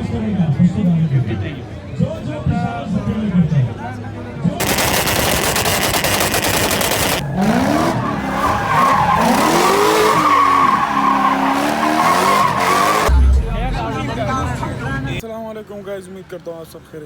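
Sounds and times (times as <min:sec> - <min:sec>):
dense rapid crackle: 0:04.6 - 0:07.2
car engine revving: 0:04.6 - 0:15.1
car tyres squealing: 0:04.7 - 0:13.1.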